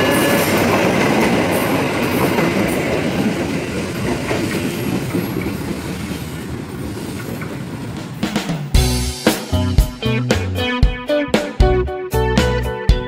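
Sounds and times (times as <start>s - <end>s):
train wheels clattering on rails: 0.0s - 8.8s.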